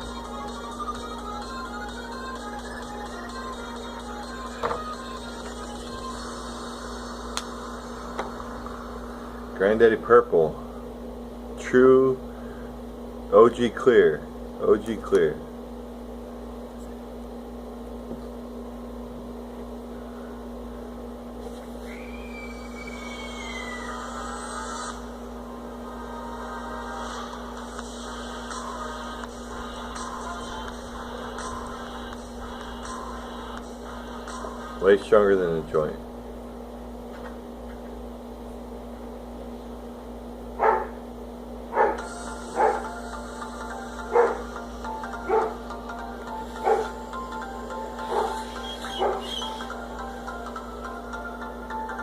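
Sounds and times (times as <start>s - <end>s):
steady hum: 0.0s - 52.0s
thin high falling tone: 21.9s - 24.7s
dog barking: 40.6s - 41.0s, 41.7s - 42.9s, 44.1s - 44.5s, 45.2s - 45.6s, 46.6s - 47.0s, 48.0s - 49.4s.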